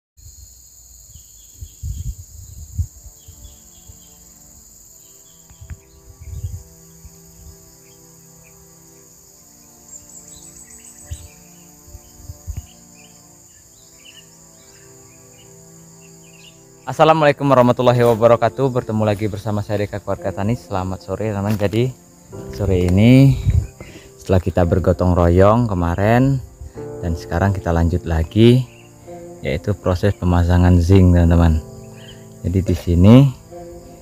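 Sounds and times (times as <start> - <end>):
crickets and insects droning: 0.2 - 34.0
soft background music: 1.6 - 34.0
bird chirps: 9.8 - 17.0, 26.7 - 34.0.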